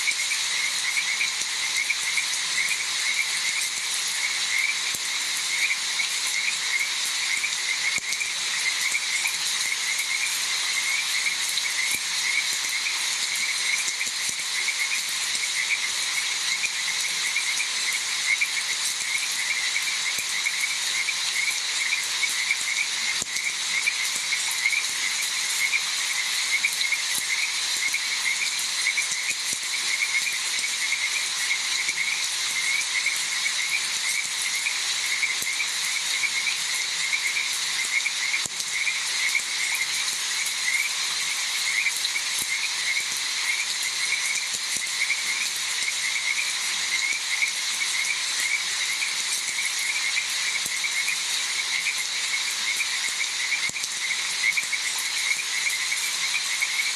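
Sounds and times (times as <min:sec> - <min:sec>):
continuous even hiss: 0:00.0 - 0:56.9
frogs croaking: 0:00.0 - 0:56.9.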